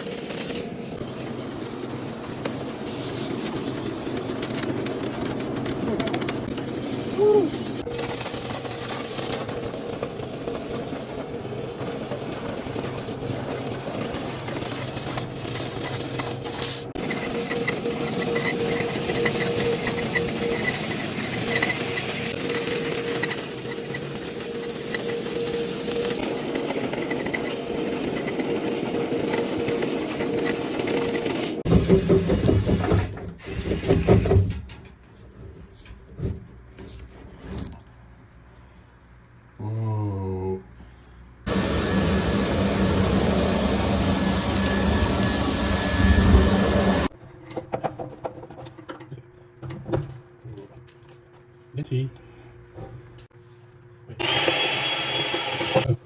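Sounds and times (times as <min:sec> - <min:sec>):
rattling and scraping: 0:00.0 - 0:37.9
vacuum cleaner running: 0:07.4 - 0:32.8, 0:41.5 - 0:47.1, 0:54.1 - 0:56.0
machine motor humming: 0:41.5 - 0:47.1.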